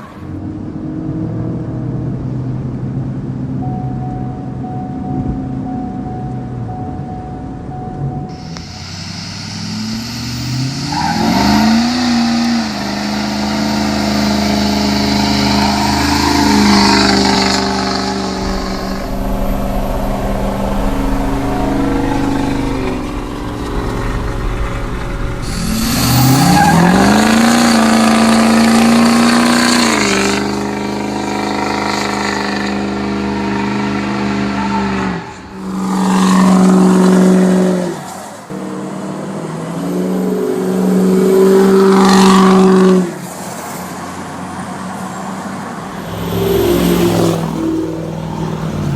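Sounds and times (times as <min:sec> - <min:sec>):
diesel engine revving: 0:08.3 - 0:43.8, 0:45.7 - 0:48.9.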